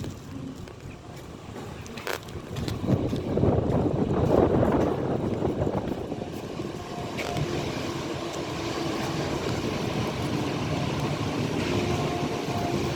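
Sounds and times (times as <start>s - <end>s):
train wheels rumbling on rails: 0.0s - 12.9s.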